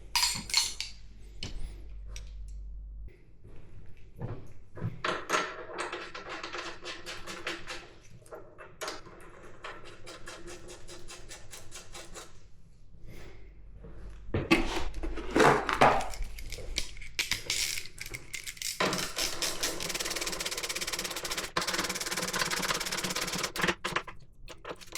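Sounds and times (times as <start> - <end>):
metal tools clinking: 0.0 - 1.0.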